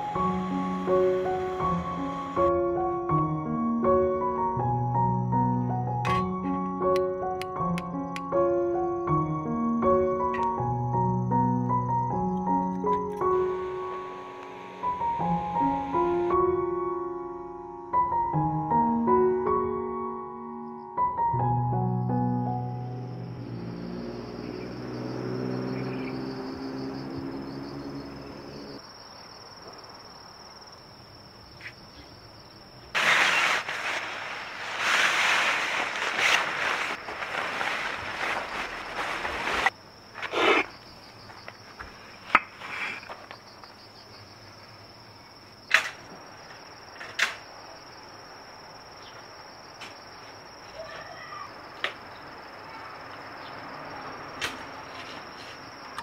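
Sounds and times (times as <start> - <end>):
high insect trill: 0.0 - 3.6, 4.4 - 18.3, 20.5 - 56.0
plastic sack rustling: 33.0 - 39.8.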